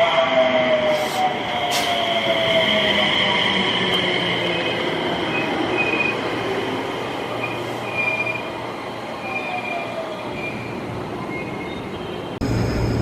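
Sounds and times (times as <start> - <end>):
rumble of train cars: 0.0 - 13.0
train wheels squealing: 0.8 - 6.3, 7.3 - 8.6, 9.2 - 12.1.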